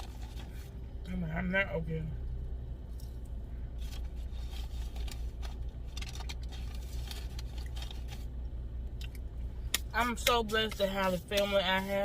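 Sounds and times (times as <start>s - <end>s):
car low hum: 0.0s - 12.0s
food wrapper crinkling: 3.8s - 8.4s.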